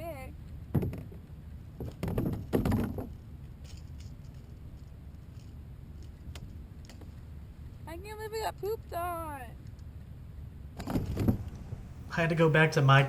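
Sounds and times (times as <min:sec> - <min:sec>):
low steady rumble: 0:00.0 - 0:13.0
knocks and rattles: 0:00.7 - 0:07.2, 0:10.8 - 0:12.0.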